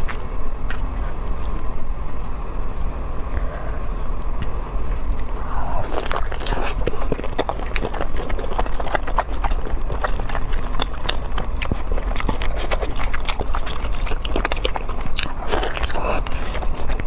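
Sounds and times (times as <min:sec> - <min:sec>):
chewing with wet mouth clicks: 0:04.4 - 0:17.0.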